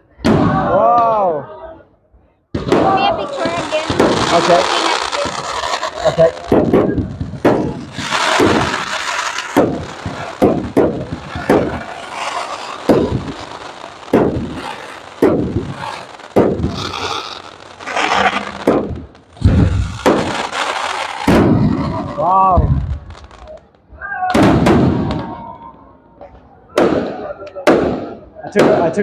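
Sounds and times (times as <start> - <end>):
fireworks crackling and hissing: 2.5 - 29.0
fireworks shells bursting: 2.6 - 22.2.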